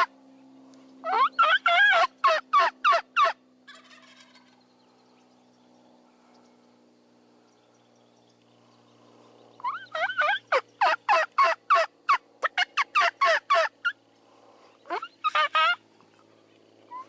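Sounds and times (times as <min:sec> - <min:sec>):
wild turkey calling: 0:01.0 - 0:04.6, 0:09.6 - 0:14.0, 0:14.8 - 0:15.8.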